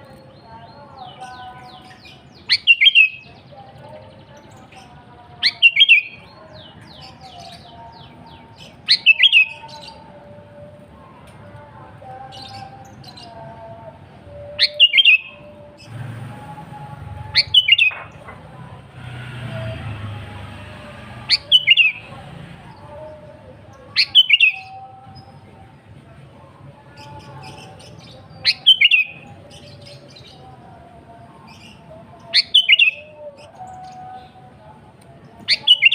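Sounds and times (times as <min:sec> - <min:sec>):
bird calling sharp notes: 0:17.2 - 0:18.2.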